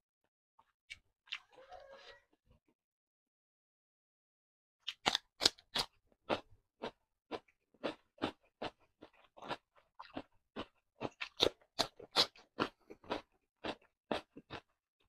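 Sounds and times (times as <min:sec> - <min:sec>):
crunching chews of cucumber: 0:04.8 - 0:14.8.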